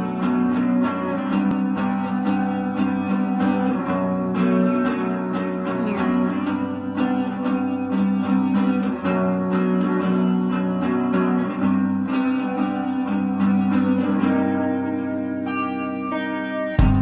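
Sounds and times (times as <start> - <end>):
plucked guitar: 0.0 - 17.0
low bass: 16.8 - 17.0.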